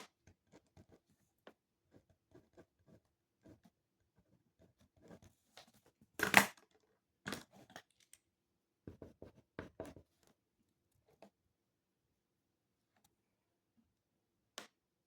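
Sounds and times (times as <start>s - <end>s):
small taps on desk: 8.9s - 10.1s.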